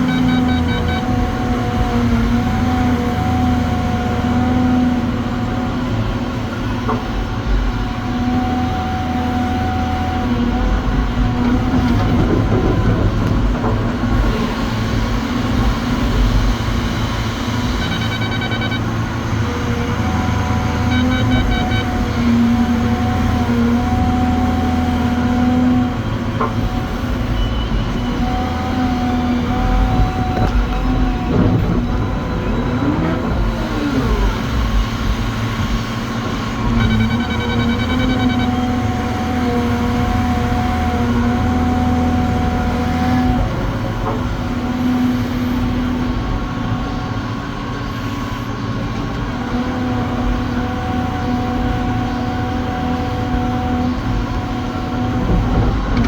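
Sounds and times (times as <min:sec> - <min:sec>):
rapid beeping: 0:00.0 - 0:01.2, 0:17.6 - 0:19.0, 0:20.6 - 0:22.0, 0:36.6 - 0:38.9
diesel truck engine running: 0:00.0 - 0:56.0.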